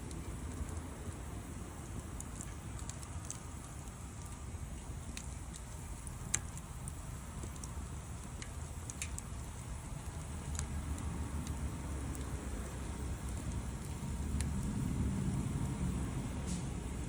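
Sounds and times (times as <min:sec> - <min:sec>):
steady low rumble: 0:00.0 - 0:17.0
wood fire crackling and popping: 0:00.0 - 0:17.0.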